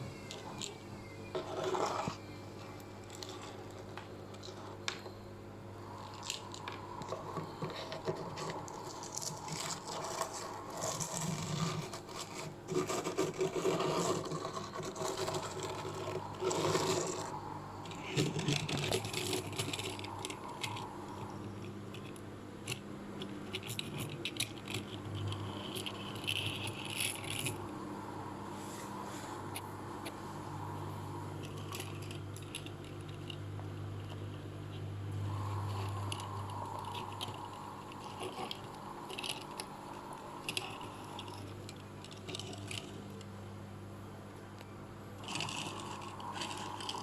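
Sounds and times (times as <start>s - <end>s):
objects scraping and rattling: 0.0s - 5.2s, 5.8s - 43.3s, 45.2s - 47.0s
steady low hum: 0.0s - 47.0s.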